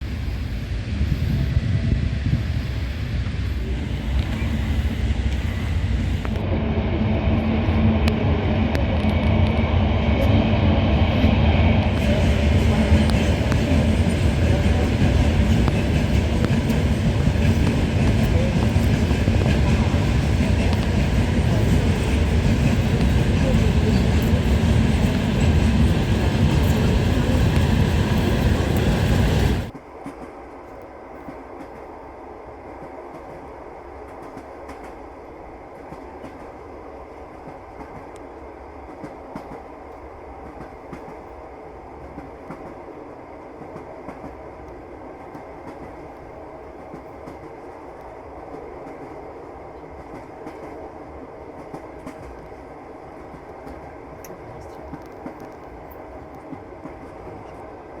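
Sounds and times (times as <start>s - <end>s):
train rumbling on rails: 0.0s - 58.0s.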